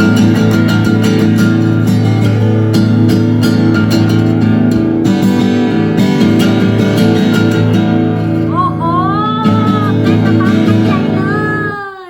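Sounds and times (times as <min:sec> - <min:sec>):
guitar strumming chords: 0:00.0 - 0:12.0
gliding melody line: 0:08.2 - 0:11.5.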